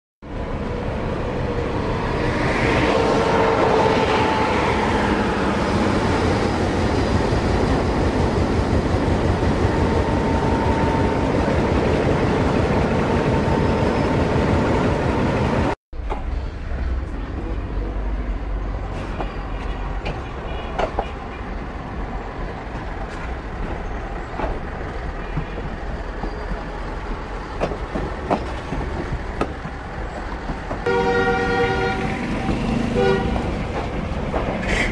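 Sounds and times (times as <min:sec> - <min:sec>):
train wheels rumbling on track: 0:00.3 - 0:34.9.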